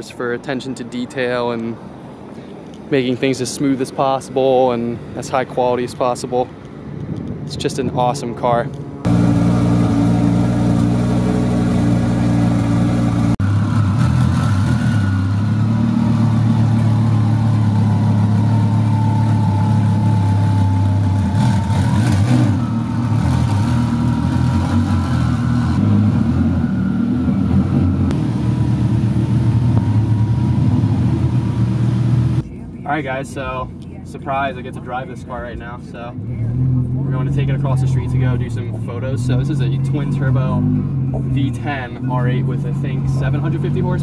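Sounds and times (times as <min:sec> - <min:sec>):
car engine idling: 0:08.8 - 0:14.5, 0:15.3 - 0:25.9.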